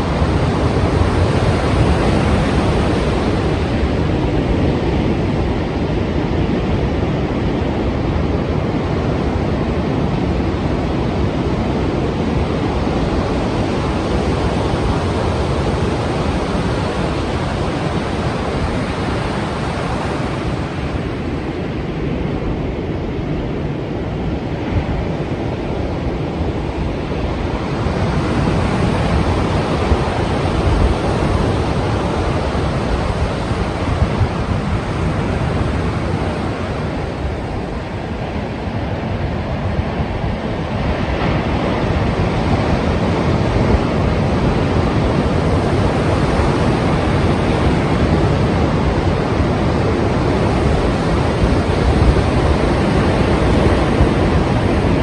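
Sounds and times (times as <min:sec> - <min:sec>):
sea waves breaking: 0:00.0 - 0:55.0.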